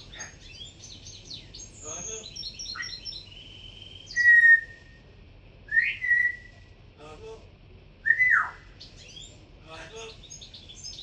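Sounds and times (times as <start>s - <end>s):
cockatiel whistling: 4.1s - 4.9s, 5.7s - 6.5s, 8.0s - 8.6s.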